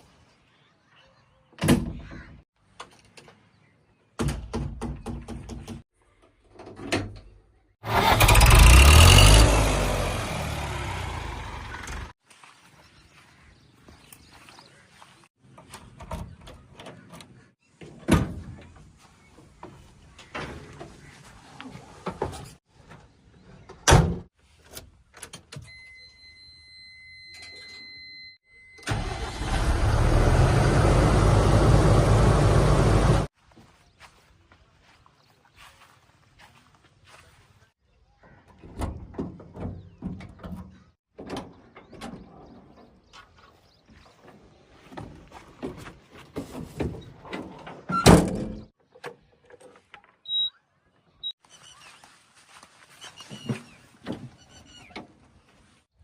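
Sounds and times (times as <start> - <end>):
faint electronic beep: 25.7 - 28.8
vehicle engine running loudly: 29.8 - 33.3.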